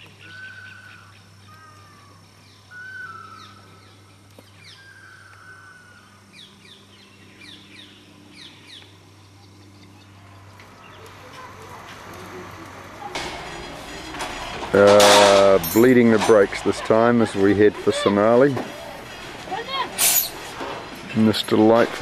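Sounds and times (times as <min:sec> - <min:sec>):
drawn-out bird whistle: 0:02.7 - 0:03.7.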